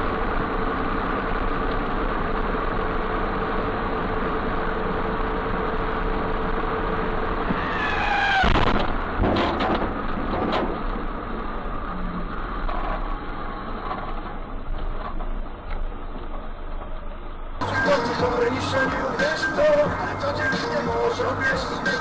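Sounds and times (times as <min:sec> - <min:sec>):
car road and engine noise: 0:00.0 - 0:22.0
rising squeal: 0:07.4 - 0:08.9.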